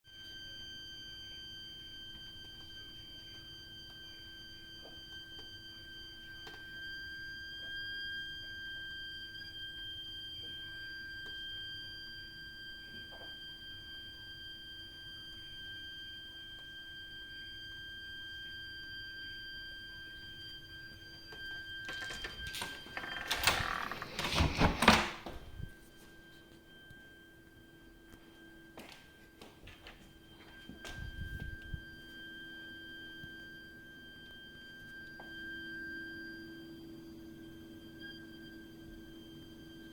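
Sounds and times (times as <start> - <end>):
high-pitched pipe whistling: 0.1 - 39.9
high-pitched whistling shriek: 30.2 - 39.9.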